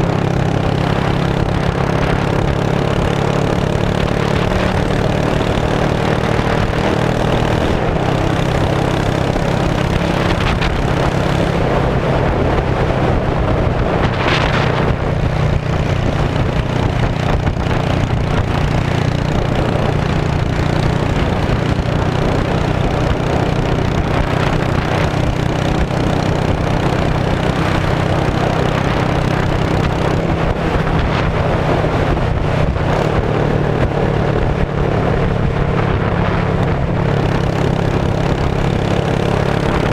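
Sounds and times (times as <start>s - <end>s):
motorcycle engine running loudly: 0.0s - 39.9s
wind noise on microphone: 0.0s - 39.9s.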